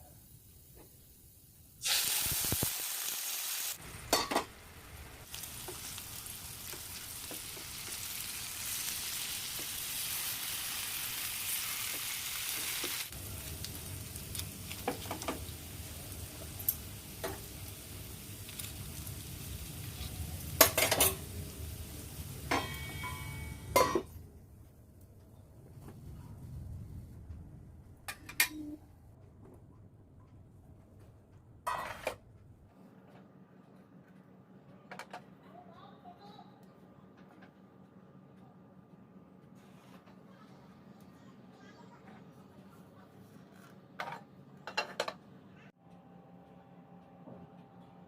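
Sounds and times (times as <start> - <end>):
food sizzling in a pan: 0.2 - 23.8.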